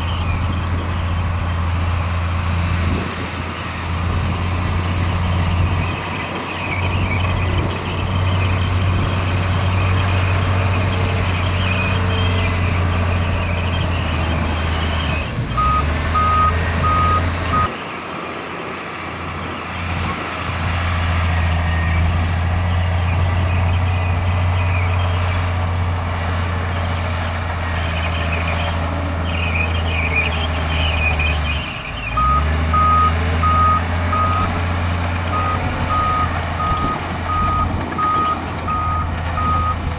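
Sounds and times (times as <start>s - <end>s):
heavy diesel machinery running: 0.0s - 39.9s
reversing alarm beeping: 15.6s - 17.7s, 32.2s - 34.6s, 35.3s - 39.8s.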